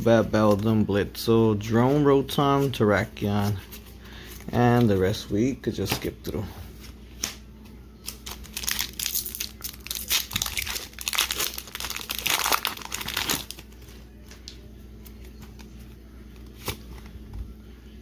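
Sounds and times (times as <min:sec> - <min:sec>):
foil wrapper crinkling and tearing: 0:08.0 - 0:14.6.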